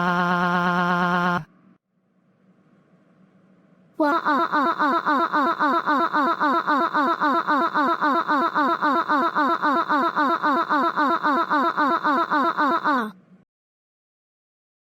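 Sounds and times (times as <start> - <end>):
cartoon vocal syllables repeating: 0.0 - 1.4, 4.0 - 13.1.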